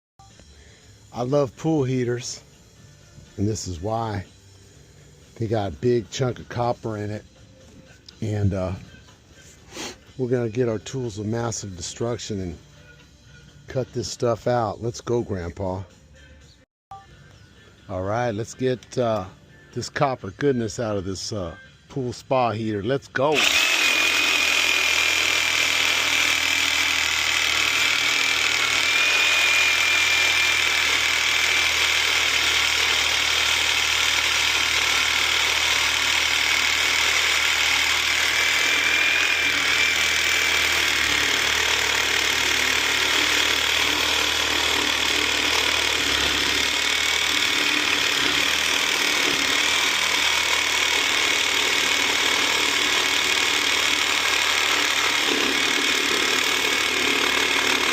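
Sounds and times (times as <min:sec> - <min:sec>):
power saw cutting metal: 0:23.2 - 0:57.9.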